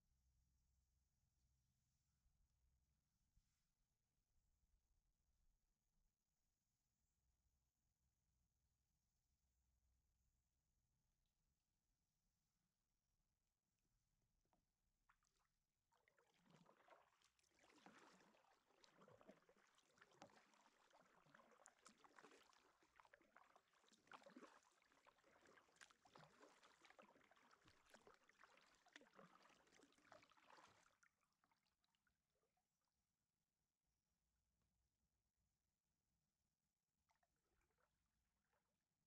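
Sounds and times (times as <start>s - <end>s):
kayak paddle splashing water: 15.1s - 31.7s.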